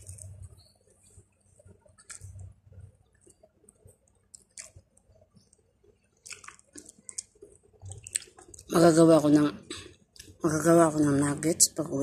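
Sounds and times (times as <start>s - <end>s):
person chewing with wet smacks: 1.8s - 8.7s.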